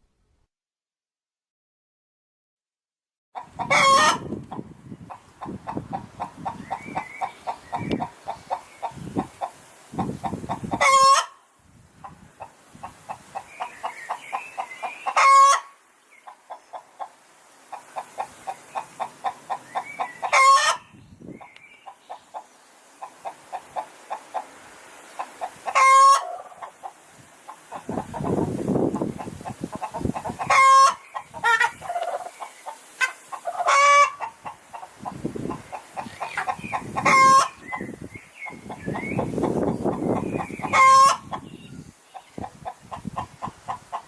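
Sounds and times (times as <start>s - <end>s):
hen cackling: 3.4s - 11.4s, 12.0s - 24.6s, 25.2s - 44.0s.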